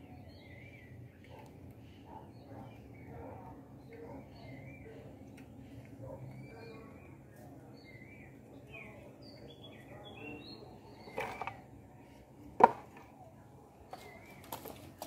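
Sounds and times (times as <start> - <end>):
birds chirping: 0.0 - 15.0
wood knocking on wood: 12.6 - 13.0.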